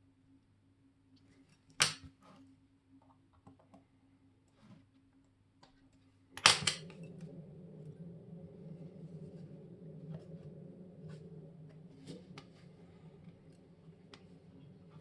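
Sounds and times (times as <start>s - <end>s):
low steady hum: 5.9s - 15.0s.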